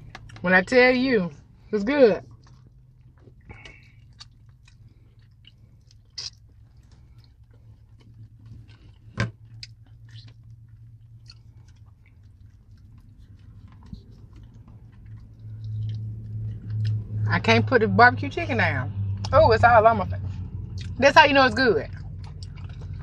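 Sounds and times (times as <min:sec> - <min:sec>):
low hum: 0:00.0 - 0:23.0
people chewing: 0:01.4 - 0:17.3, 0:20.7 - 0:21.0, 0:21.8 - 0:23.0.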